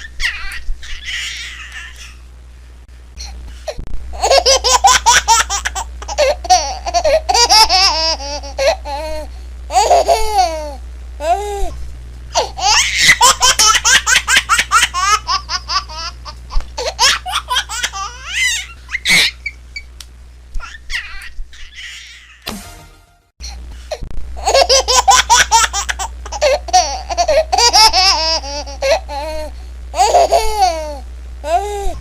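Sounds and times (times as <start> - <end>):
baby laughing: 0.0 - 2.2, 4.2 - 11.4, 12.4 - 19.6, 20.6 - 22.4, 24.4 - 31.7
baby squealing: 0.1 - 2.2, 20.6 - 22.4
low hum: 5.0 - 14.0.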